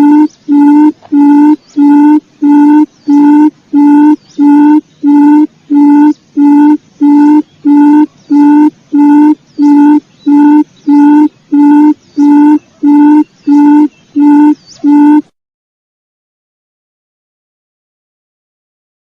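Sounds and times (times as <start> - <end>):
quail lure call hooting: 0.0 - 15.3.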